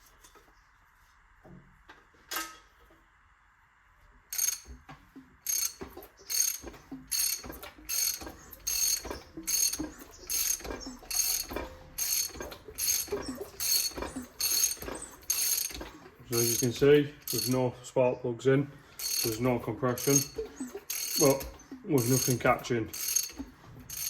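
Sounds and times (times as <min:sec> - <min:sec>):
socket ratchet clicking: 0:04.4 - 0:04.7, 0:19.0 - 0:19.4, 0:20.0 - 0:21.4, 0:23.0 - 0:24.0.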